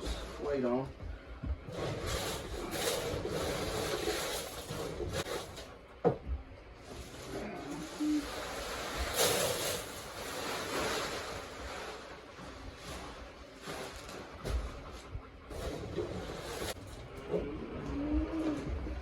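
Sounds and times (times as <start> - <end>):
feed pellets rustling and hissing: 6.9 - 14.4.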